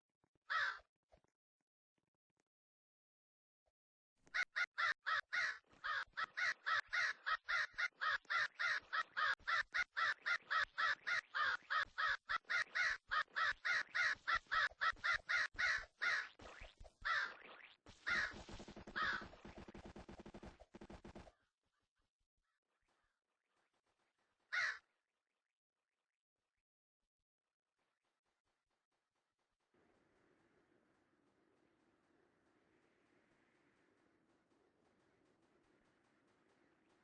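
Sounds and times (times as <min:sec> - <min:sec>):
bird harsh calls: 0:04.4 - 0:16.4, 0:17.0 - 0:17.4, 0:18.0 - 0:19.5, 0:24.5 - 0:24.8
bird rattle call: 0:18.0 - 0:19.4.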